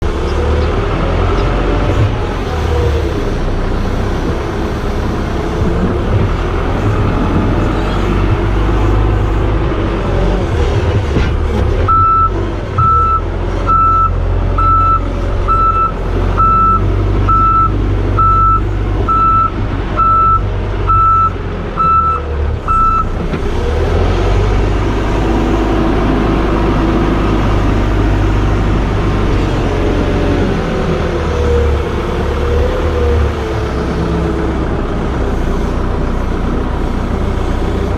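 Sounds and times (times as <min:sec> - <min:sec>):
heavy vehicle engine running: 0:00.0 - 0:37.9
reversing alarm beeping: 0:11.9 - 0:23.1.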